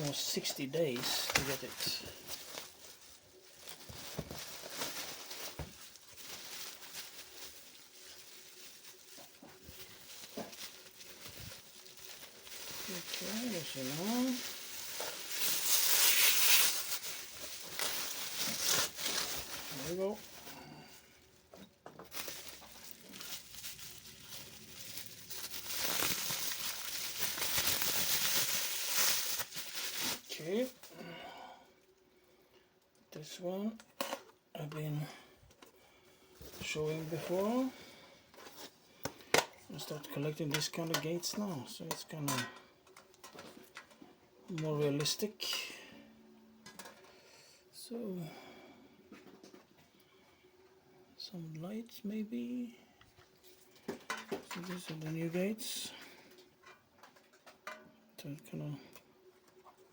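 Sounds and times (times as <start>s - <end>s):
packaging rustling: 0.0s - 31.0s.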